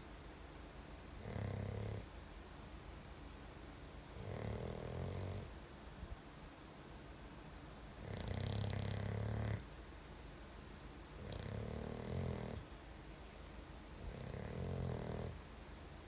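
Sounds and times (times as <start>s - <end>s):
dog snoring: 1.2s - 2.1s, 4.1s - 5.5s, 8.0s - 9.7s, 11.2s - 12.6s, 14.0s - 15.4s.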